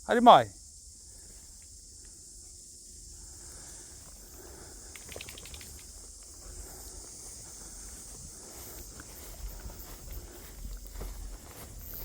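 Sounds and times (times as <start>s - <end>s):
high-pitched hiss: 0.0s - 12.0s
light clicks: 4.9s - 6.3s.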